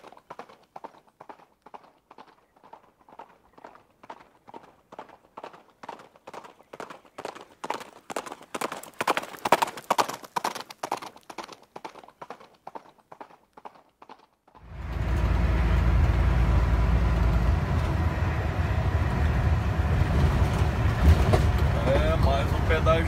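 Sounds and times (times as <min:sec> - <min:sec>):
diesel truck engine in cab: 0:14.6 - 0:23.0.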